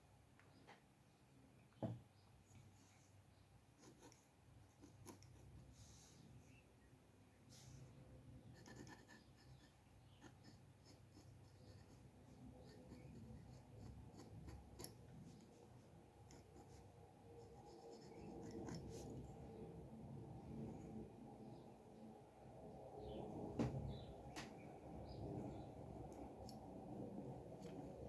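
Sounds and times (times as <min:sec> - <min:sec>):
drawing tool scratching paper: 0:03.8 - 0:05.8, 0:08.5 - 0:15.6, 0:16.2 - 0:19.2.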